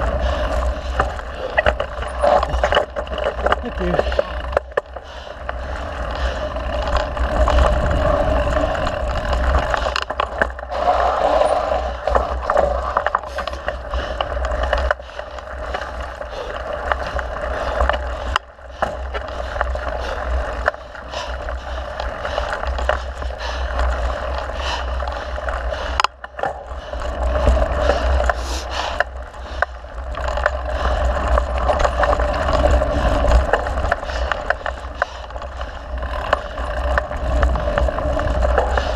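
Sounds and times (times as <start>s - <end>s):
bike rattling and clicking: 0.0s - 38.9s
bike tyres on dirt trail: 0.0s - 38.9s
wind buffeting microphone: 5.6s - 10.0s.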